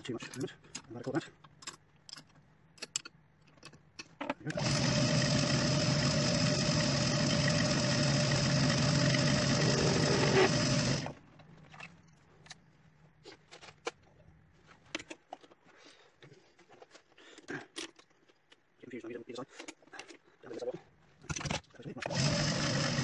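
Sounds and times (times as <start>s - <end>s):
metal tooling clicks and knocks: 0.2s - 4.4s
metal lathe running: 4.5s - 11.2s, 22.1s - 23.0s.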